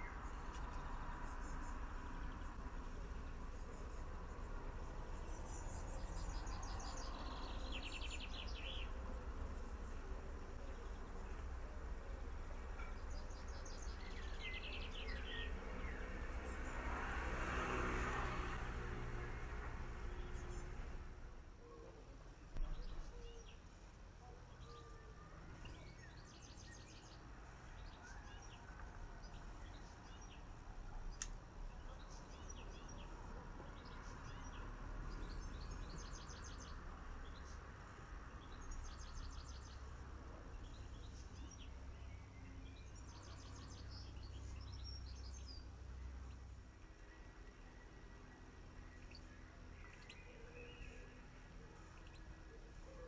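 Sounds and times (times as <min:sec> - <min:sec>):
small birds chirping: 0:00.0 - 0:53.0
faint click: 0:31.1 - 0:31.4.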